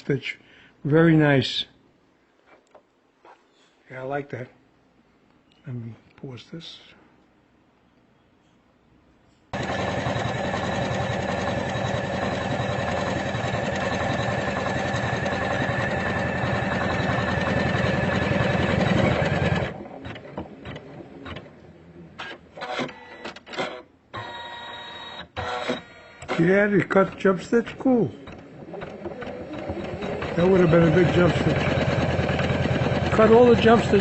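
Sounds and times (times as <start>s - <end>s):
machine clicks and short whirs: 9.5s - 34.0s
embroidery machine stitching: 9.6s - 34.0s.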